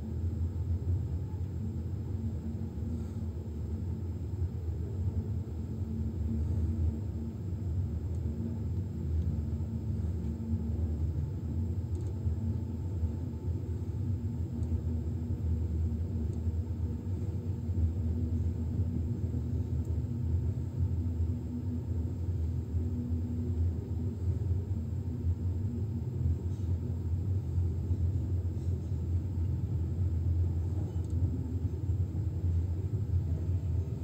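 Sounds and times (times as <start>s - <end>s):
faint steady hum: 0.0s - 34.0s
train low rumble: 0.0s - 34.0s.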